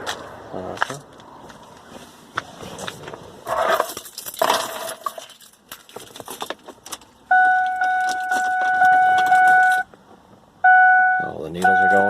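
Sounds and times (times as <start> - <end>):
rustling scrapes: 1.8 - 6.8.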